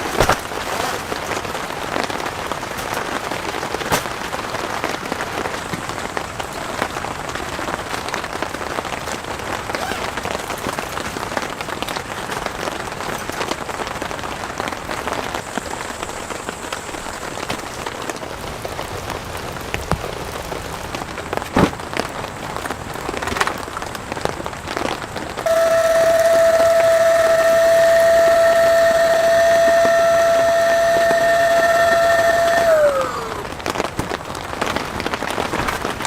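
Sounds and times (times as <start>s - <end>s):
rain pattering: 0.0s - 36.0s
steady whistling tone: 25.5s - 33.6s.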